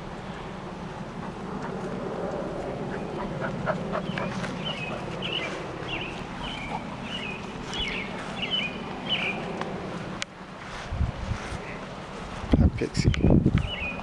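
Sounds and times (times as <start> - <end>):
low background hum: 0.0 - 14.0
songbird high chirps: 4.0 - 9.5, 13.1 - 14.0.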